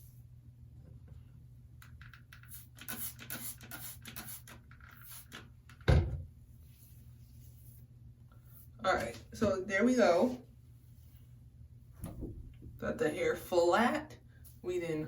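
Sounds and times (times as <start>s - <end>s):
rustling and scratching of wig: 6.6s - 11.6s.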